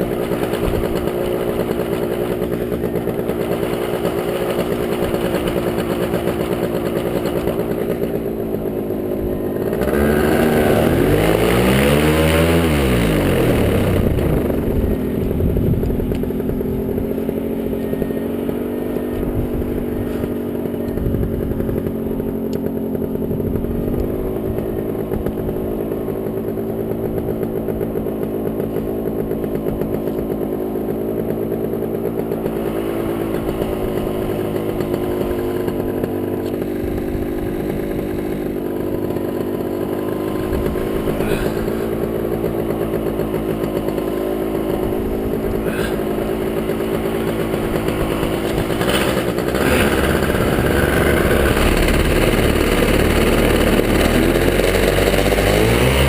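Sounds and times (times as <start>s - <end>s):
paramotor engine running: 0.0s - 56.0s.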